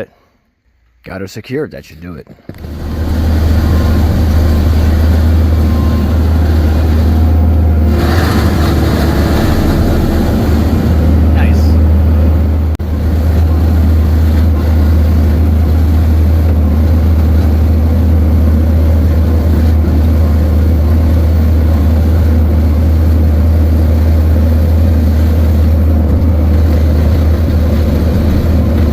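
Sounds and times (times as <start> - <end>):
diesel engine running: 2.5 - 28.9.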